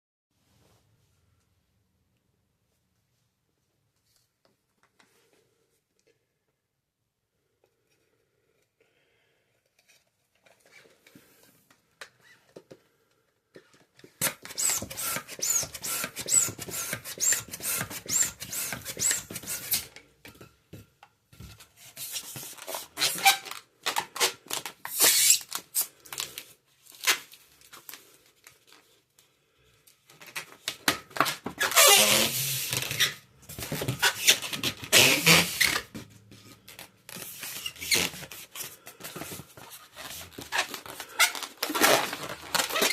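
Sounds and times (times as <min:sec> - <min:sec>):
balloon rubber squeaking: 0:14.2 - 0:19.9, 0:22.1 - 0:23.5, 0:24.2 - 0:25.5, 0:31.6 - 0:35.9, 0:37.1 - 0:38.7, 0:39.9 - 0:42.9.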